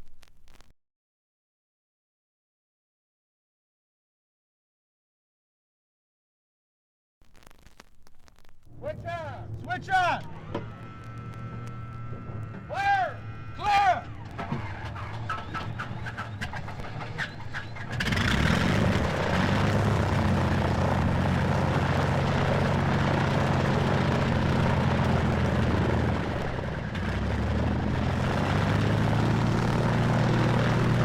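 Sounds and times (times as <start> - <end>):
piston engine starting and running: 9.1 - 31.0.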